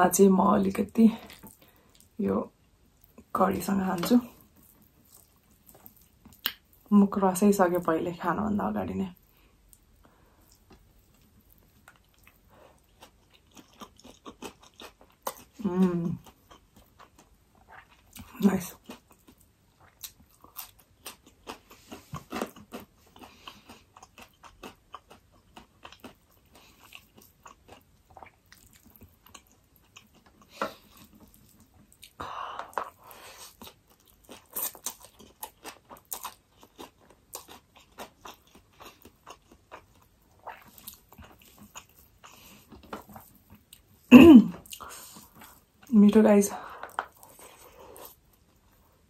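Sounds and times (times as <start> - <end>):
person chewing with lip smacks: 4.0 - 6.9, 9.7 - 15.6, 16.2 - 45.9.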